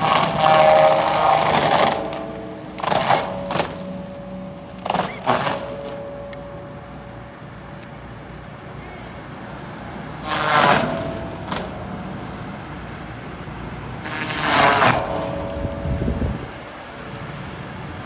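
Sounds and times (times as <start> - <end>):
cutter splintering and grinding wood: 0.0 - 6.5, 10.2 - 12.0, 13.9 - 16.0
skid steer running: 0.0 - 18.0.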